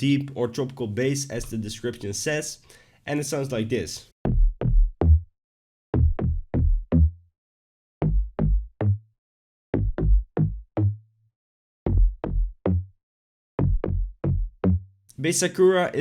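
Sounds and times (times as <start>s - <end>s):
deep plucked synth bass line: 4.2s - 5.3s, 6.0s - 7.2s, 8.0s - 9.1s, 9.8s - 11.1s, 11.9s - 13.0s, 13.6s - 14.9s.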